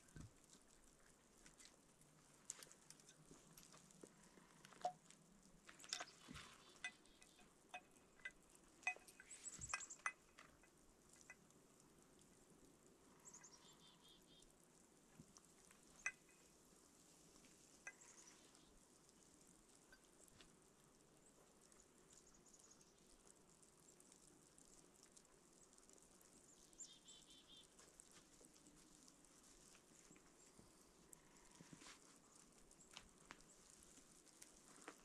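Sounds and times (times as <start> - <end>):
objects clicking and clinking: 5.7 - 11.4.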